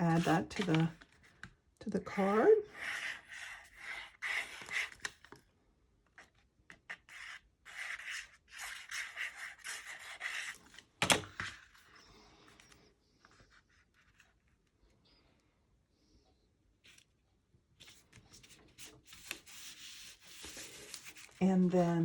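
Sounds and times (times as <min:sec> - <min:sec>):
cardstock rubbing against paper: 0:17.8 - 0:21.4.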